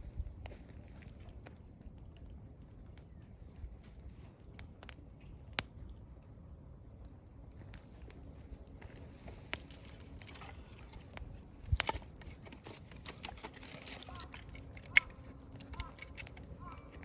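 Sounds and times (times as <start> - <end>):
campfire crackling and popping: 0.0 - 17.0
bird chirping: 12.7 - 17.0.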